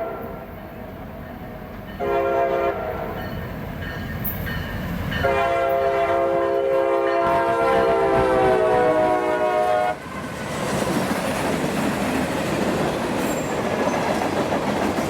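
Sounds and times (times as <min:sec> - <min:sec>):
locomotive air horn blasts: 0:00.0 - 0:00.4, 0:02.0 - 0:03.2, 0:05.2 - 0:10.0
rumble of moving train: 0:00.0 - 0:15.0.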